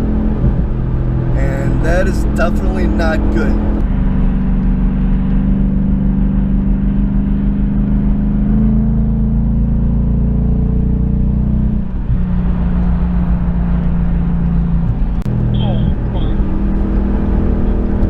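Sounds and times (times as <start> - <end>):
car engine at highway speed: 0.0 - 18.0.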